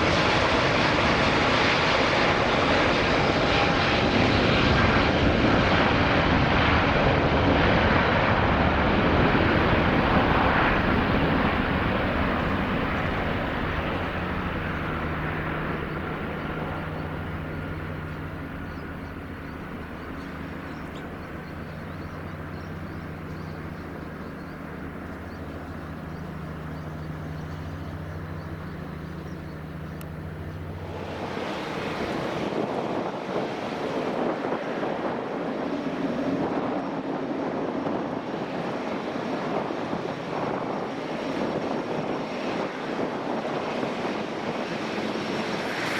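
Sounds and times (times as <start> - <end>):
jet engine roar: 0.0 - 45.9
rushing noise: 9.2 - 33.0.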